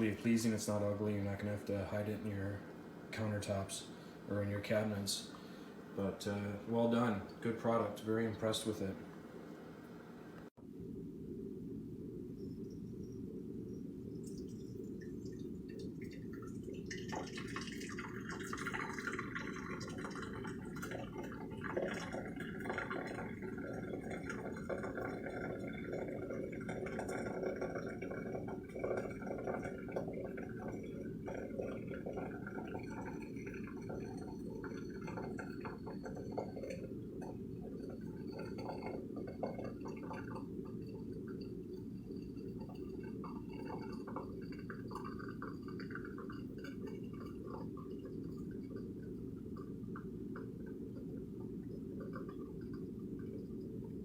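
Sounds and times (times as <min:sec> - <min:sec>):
steady low hum: 0:00.0 - 0:54.0
water dripping and trickling: 0:14.1 - 0:54.0.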